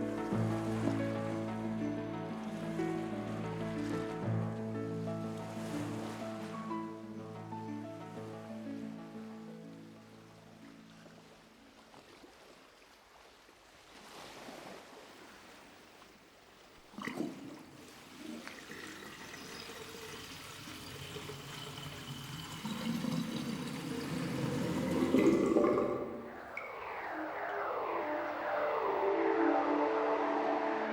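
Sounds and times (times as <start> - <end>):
water trickling and splashing: 9.8 - 28.9.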